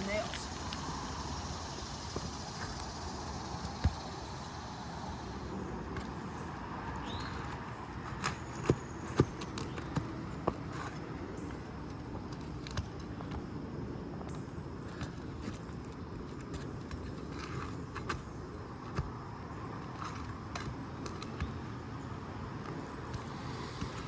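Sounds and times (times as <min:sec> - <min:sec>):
background hiss: 0:00.0 - 0:07.0.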